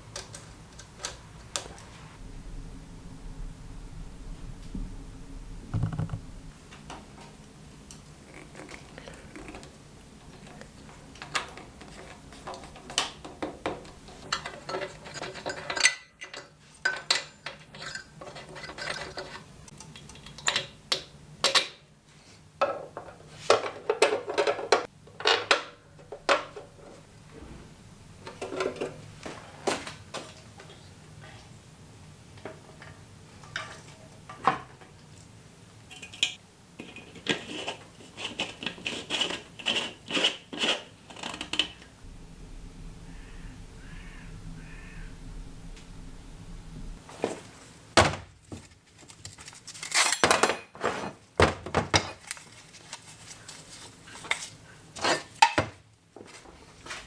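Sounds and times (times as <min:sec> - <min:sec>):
faint low hum: 0:00.0 - 0:12.2, 0:41.1 - 0:47.4.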